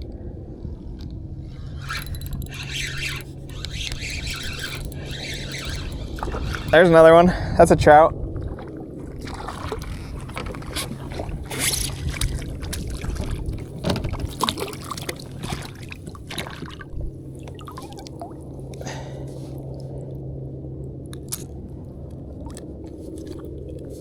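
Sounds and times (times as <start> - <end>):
steady low hum: 0.0 - 13.8
water splashing: 1.6 - 7.3, 8.2 - 18.4.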